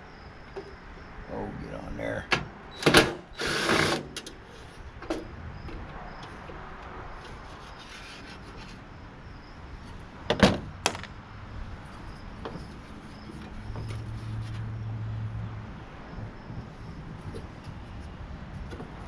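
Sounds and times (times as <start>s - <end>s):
knocks of parts being handled: 10.3s - 11.2s.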